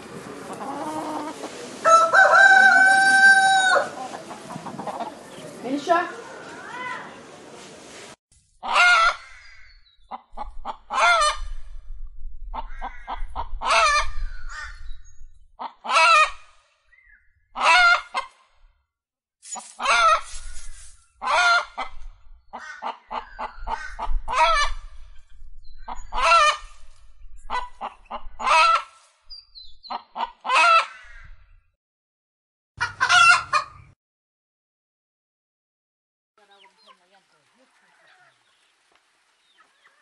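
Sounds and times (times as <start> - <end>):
chicken clucking and squawking: 0.3 - 5.6, 8.6 - 9.2, 10.1 - 11.4, 12.5 - 14.8, 15.6 - 16.4, 17.6 - 18.3, 21.2 - 24.9, 25.9 - 26.7, 27.5 - 28.9, 29.9 - 31.2, 32.8 - 33.9.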